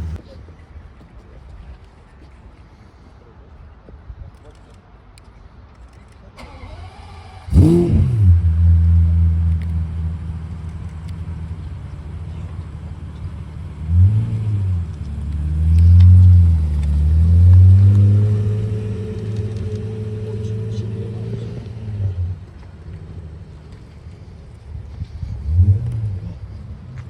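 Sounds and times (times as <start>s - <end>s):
car engine starting and revving: 6.4s - 27.0s.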